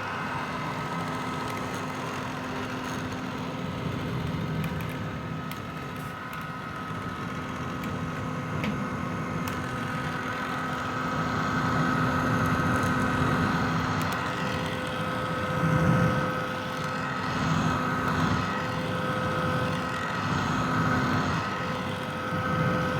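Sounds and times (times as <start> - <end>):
hair dryer running: 5.5 - 22.9.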